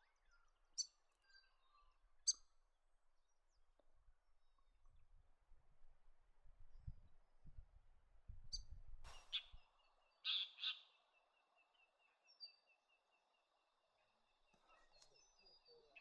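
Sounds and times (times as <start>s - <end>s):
loud bird calls: 10.2s - 10.9s.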